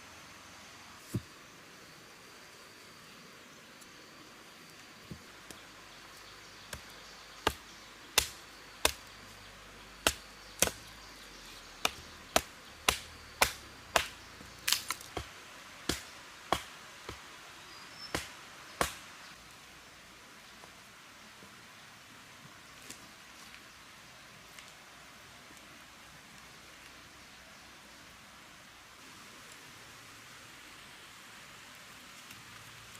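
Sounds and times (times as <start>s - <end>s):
blade chopping strikes: 11.8s - 15.3s, 15.9s - 17.2s.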